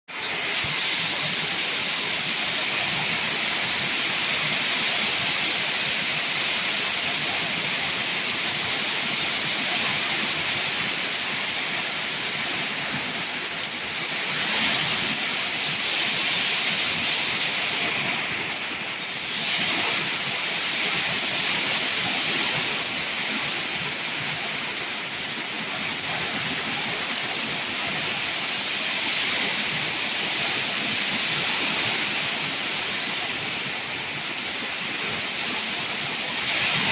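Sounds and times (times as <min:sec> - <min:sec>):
torrential rain pouring: 0:00.1 - 0:36.9.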